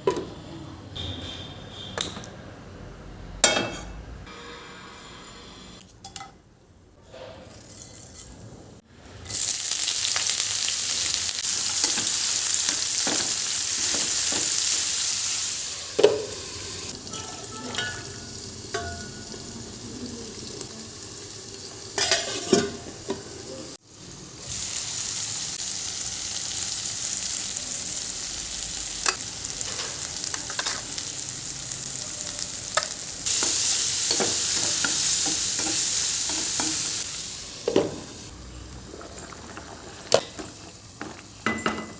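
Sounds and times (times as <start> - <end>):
food sizzling in a pan: 9.2 - 41.9.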